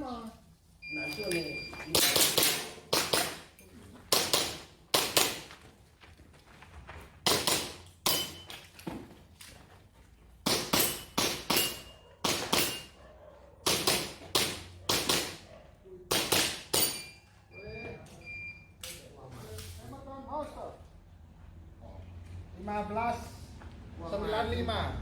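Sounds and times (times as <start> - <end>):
airsoft pistol shots: 2.0 - 3.4, 7.3 - 8.4, 10.5 - 12.9, 13.6 - 15.4, 16.1 - 17.0.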